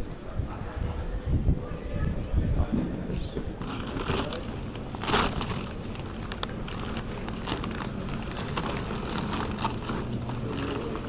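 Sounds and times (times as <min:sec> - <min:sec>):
steady background noise: 0:00.0 - 0:11.0
rustling: 0:03.6 - 0:11.0.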